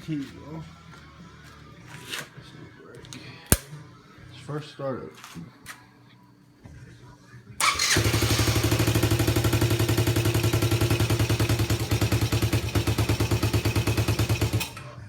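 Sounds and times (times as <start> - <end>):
engine starting and idling: 7.6 - 15.0.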